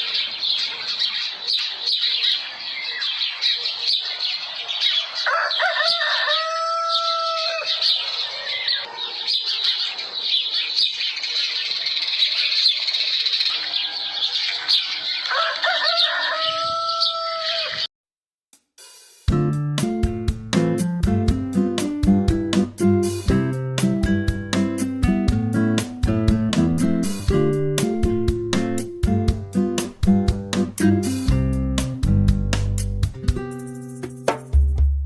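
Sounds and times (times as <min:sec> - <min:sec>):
birds chirping: 0:00.0 - 0:17.9
rooster crowing: 0:04.8 - 0:09.8, 0:13.5 - 0:17.9.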